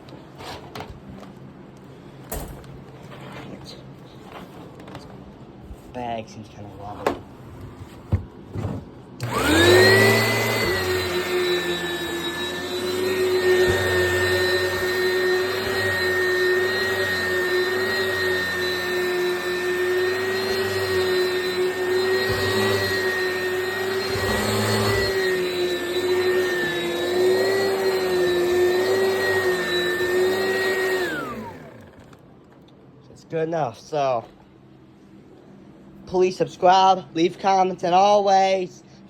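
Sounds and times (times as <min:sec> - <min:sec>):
vacuum cleaner motor whine: 0:08.5 - 0:32.2.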